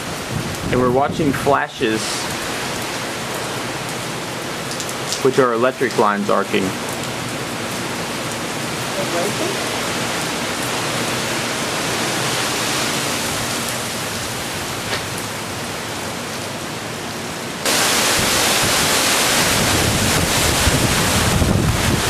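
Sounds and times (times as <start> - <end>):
gusting wind on microphone: 0.0 - 2.8, 17.6 - 22.0
heavy rain pouring: 0.0 - 22.0.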